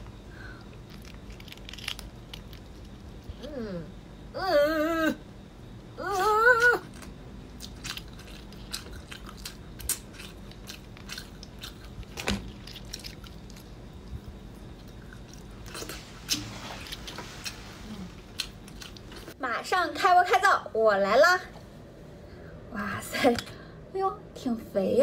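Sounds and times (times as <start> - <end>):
wet chewing: 0.6 - 3.5, 6.6 - 19.4.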